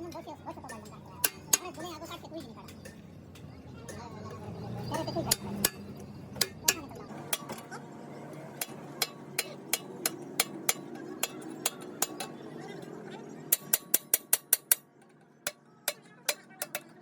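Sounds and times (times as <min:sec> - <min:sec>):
hammer striking metal: 0:00.7 - 0:02.0, 0:05.3 - 0:07.7, 0:08.6 - 0:12.4, 0:13.5 - 0:17.0.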